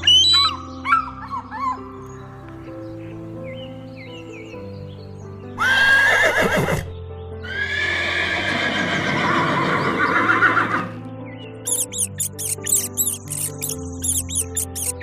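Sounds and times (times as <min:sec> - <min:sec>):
background music: 0:00.0 - 0:15.0
horse whinnying: 0:05.6 - 0:10.9.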